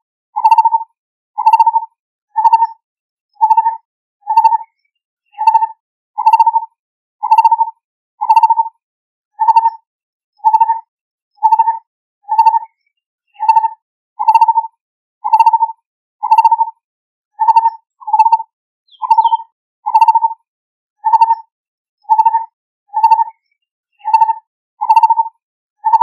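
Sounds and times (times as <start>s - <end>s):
bird calling in low trills: 13.4s - 14.6s, 16.2s - 16.6s, 17.4s - 20.3s, 22.1s - 23.3s.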